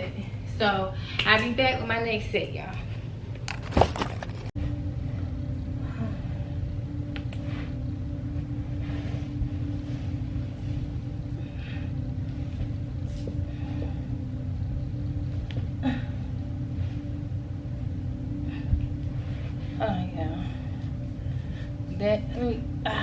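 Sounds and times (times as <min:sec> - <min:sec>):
constant low hum: 0:00.0 - 0:23.0.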